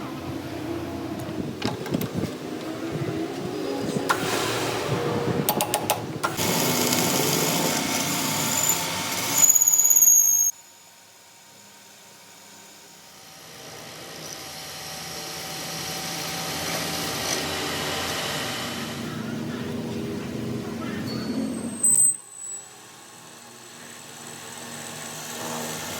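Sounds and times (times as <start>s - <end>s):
metalworking power tool running: 6.2s - 9.9s, 11.0s - 20.4s, 21.8s - 25.9s
high squeal: 8.4s - 10.5s, 21.0s - 22.9s.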